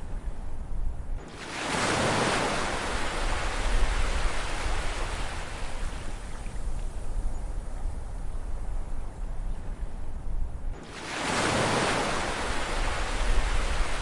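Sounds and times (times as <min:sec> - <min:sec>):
ocean waves breaking on shore: 0:01.2 - 0:06.6, 0:10.8 - 0:14.0.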